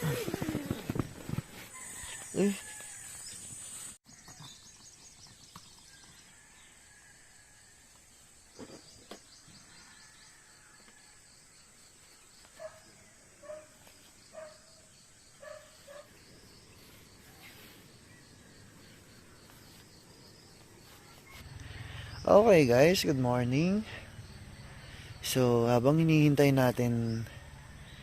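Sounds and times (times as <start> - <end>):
high insect drone: 14.1 - 28.0.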